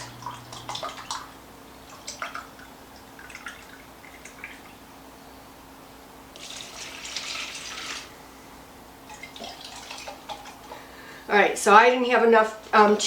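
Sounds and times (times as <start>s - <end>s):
faint drips: 0.0s - 4.8s
broth pouring into a can: 6.4s - 8.1s.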